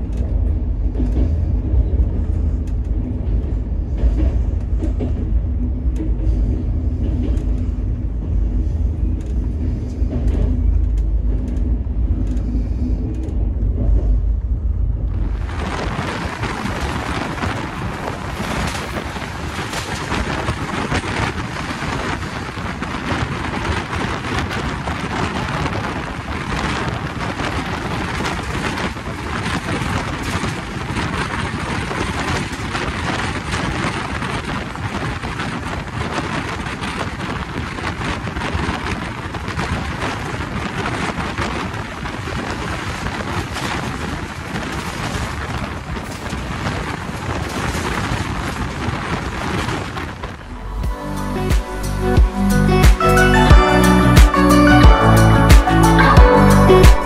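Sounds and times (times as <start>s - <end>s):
train rushing and rumbling: 0.0s - 57.0s.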